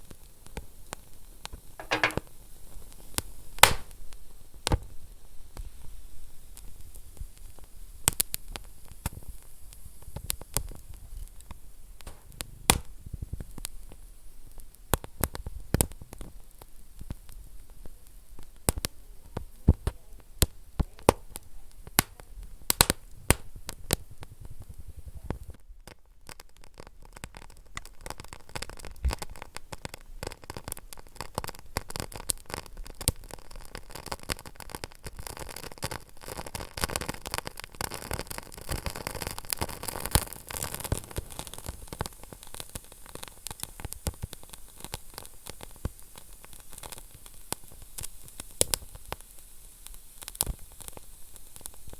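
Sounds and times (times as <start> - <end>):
low hiss of fire: 0.0 - 51.9
wood fire crackling and popping: 0.0 - 51.9.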